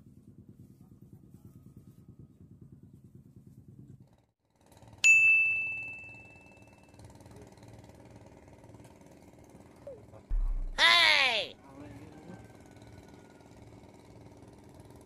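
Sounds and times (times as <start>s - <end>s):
bell ding: 5.1s - 6.8s
low steady rumble: 10.3s - 11.1s.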